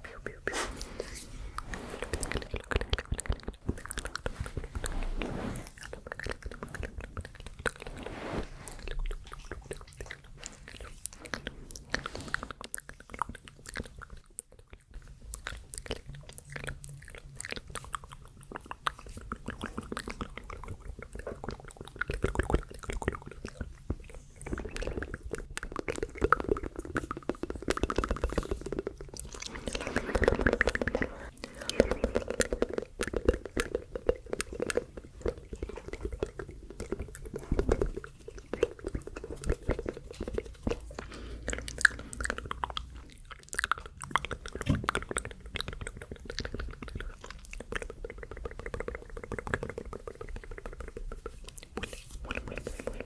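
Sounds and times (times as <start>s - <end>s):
soft breathy murmur: 0.0s - 9.8s, 28.2s - 33.0s
wet mouth clicks and smacks: 8.9s - 53.0s.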